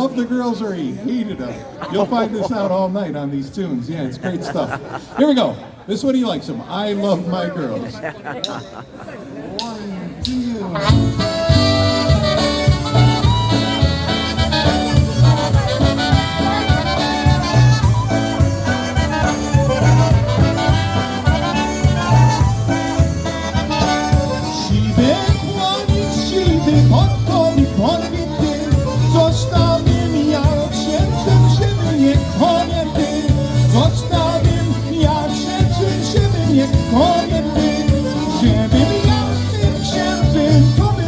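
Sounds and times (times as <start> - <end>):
polka band playing: 9.6 - 41.0.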